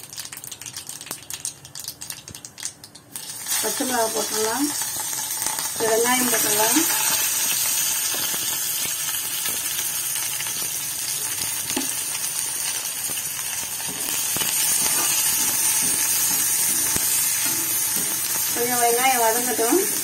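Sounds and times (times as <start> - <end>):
onions sizzling in hot oil: 0.0 - 20.0
steel spatula scraping pan: 13.9 - 18.6.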